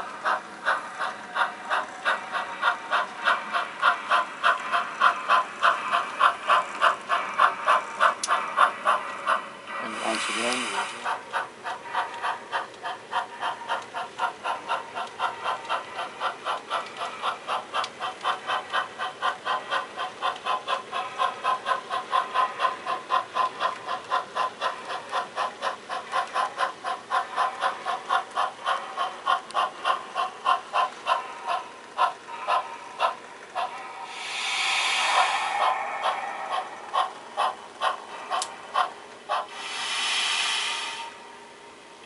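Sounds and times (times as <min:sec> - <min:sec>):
model steam locomotive chuffing: 0:00.0 - 0:42.0.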